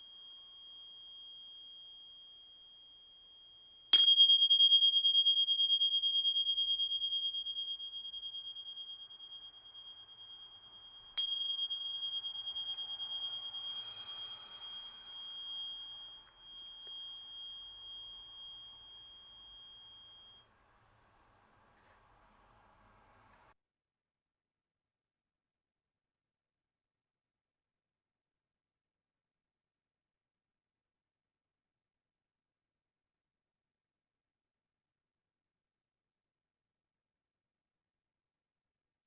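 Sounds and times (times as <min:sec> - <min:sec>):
small hand cymbals ringing: 0:00.0 - 0:20.4.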